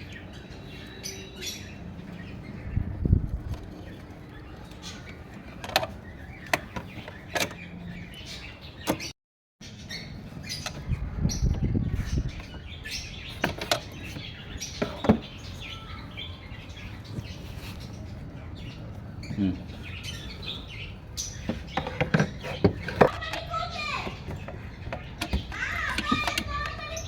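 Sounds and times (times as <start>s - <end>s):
birds chirping: 0.0s - 27.0s
hand tools clicking and knocking: 21.4s - 23.5s, 24.2s - 26.8s.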